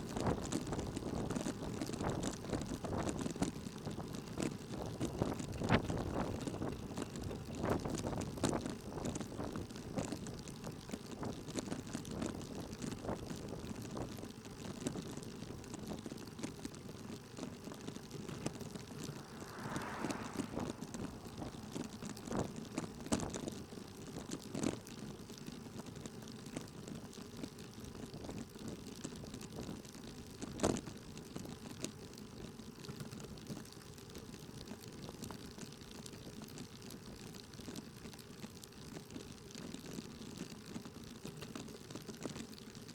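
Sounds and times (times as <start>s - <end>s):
road noise inside vehicle: 0.0s - 33.3s.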